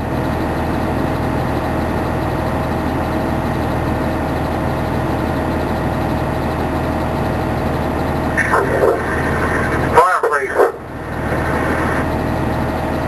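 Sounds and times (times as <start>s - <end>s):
fire engine idling rumble: 0.0s - 13.0s.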